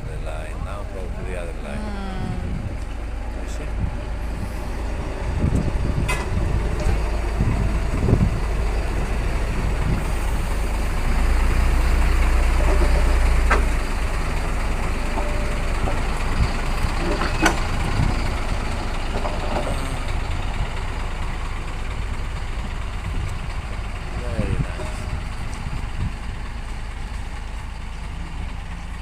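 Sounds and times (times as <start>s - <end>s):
diesel locomotive engine: 0.0s - 29.0s.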